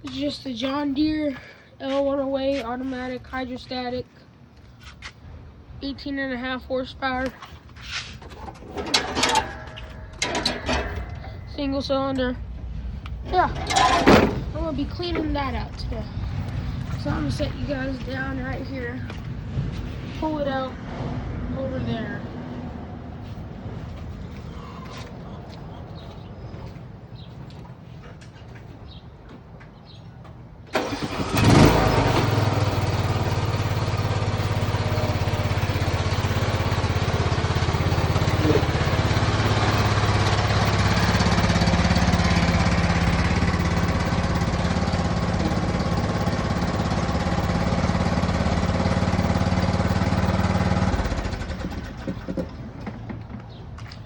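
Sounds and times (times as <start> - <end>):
mower engine cranking and running: 7.4 - 11.6, 13.1 - 17.4, 30.7 - 53.4.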